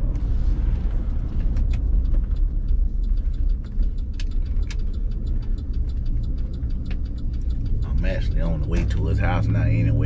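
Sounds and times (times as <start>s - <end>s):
car engine rumbling: 0.0s - 10.0s
rapid light ticking: 1.0s - 9.8s.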